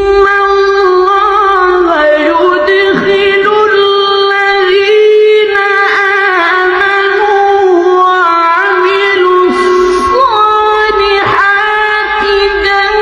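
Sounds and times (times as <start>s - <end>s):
person chanting a recitation: 0.0s - 13.0s.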